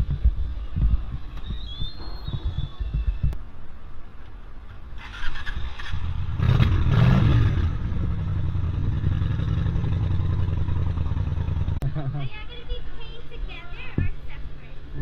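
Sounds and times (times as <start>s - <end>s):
vehicle engine humming: 4.1s - 15.0s.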